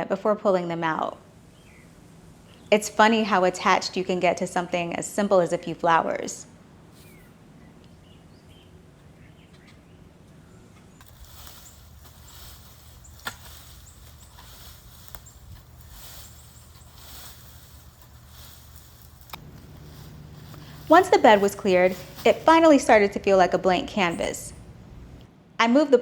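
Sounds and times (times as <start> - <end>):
plant stems snapping: 11.0 - 23.5
rustling of leaves and stems: 11.0 - 25.3.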